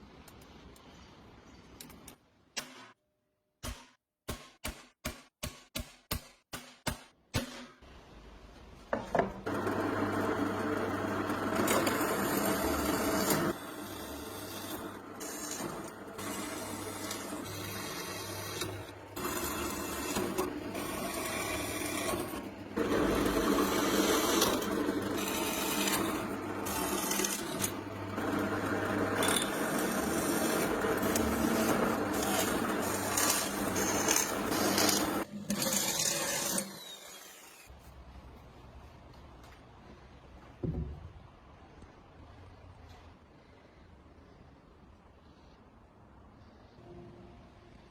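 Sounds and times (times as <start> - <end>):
small motor-driven tool: 11.4 - 37.7.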